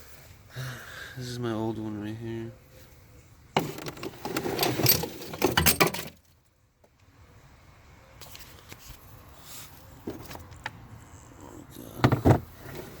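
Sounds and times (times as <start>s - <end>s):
metal parts clattering and clinking: 3.6s - 6.2s.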